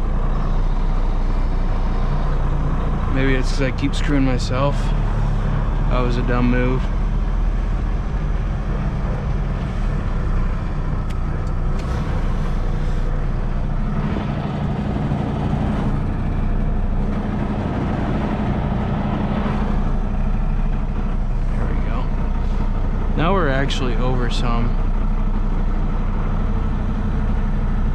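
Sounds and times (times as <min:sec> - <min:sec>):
truck diesel engine running: 0:00.0 - 0:27.9.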